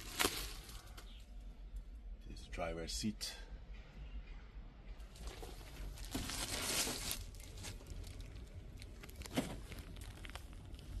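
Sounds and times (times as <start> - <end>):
rustling and crinkling handling: 0.0 - 1.2, 5.1 - 11.0.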